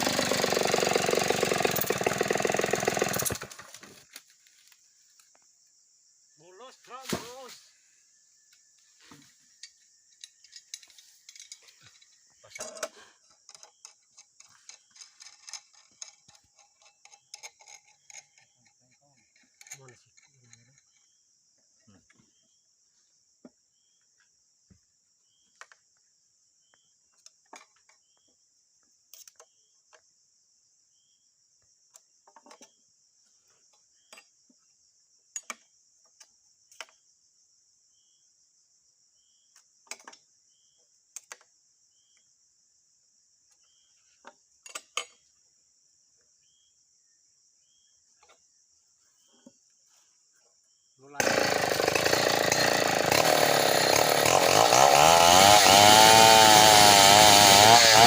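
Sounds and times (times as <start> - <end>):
insects shrilling: 6.4 - 7.8.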